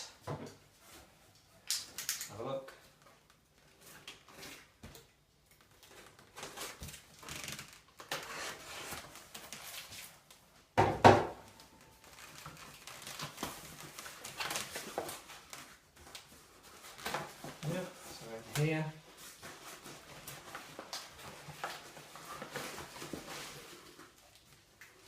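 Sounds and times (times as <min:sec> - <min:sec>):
cardboard scraping and rustling: 0:16.6 - 0:24.2.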